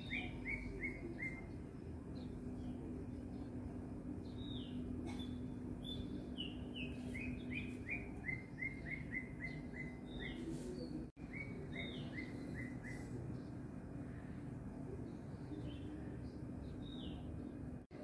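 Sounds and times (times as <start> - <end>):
steady low hum: 0.0 - 18.0
small bird chirping: 4.3 - 10.5.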